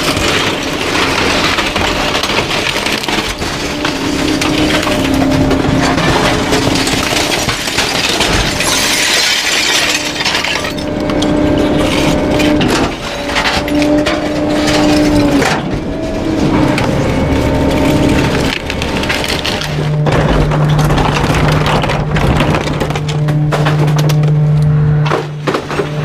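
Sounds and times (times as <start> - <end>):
glass breaking: 0.0 - 15.7
hydraulic whine: 0.0 - 26.0
wood cracking and splintering: 0.0 - 26.0.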